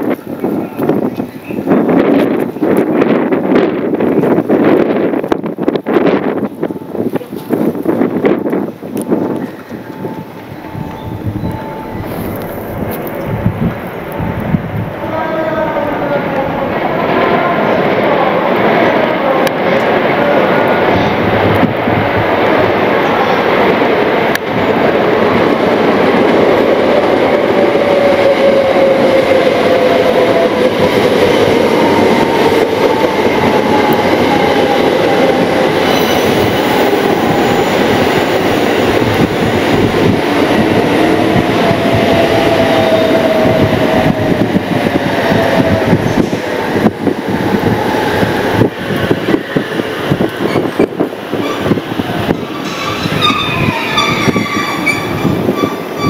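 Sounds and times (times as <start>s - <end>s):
electric train rumbling and whining: 0.0s - 56.0s
train wheels squealing: 35.8s - 37.7s, 52.5s - 56.0s.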